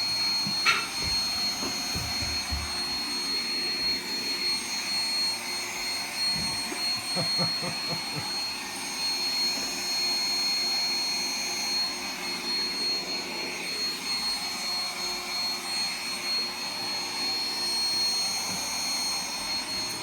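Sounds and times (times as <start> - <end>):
robot vacuum whirring: 0.0 - 20.0.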